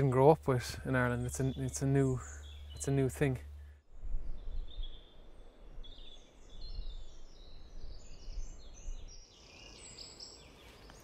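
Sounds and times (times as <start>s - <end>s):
low background rumble: 0.0s - 7.0s
songbirds singing: 0.0s - 11.0s.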